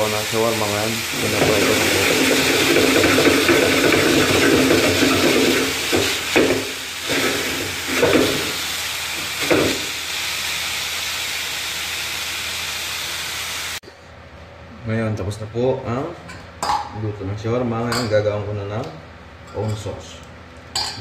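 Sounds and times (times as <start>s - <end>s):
chicken sizzling in a pan: 0.0s - 13.8s.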